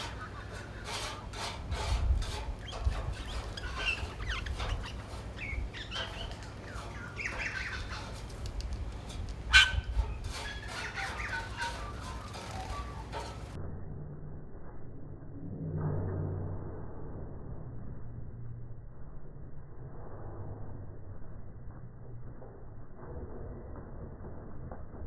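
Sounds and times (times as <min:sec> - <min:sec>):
birds calling: 0:00.0 - 0:13.6.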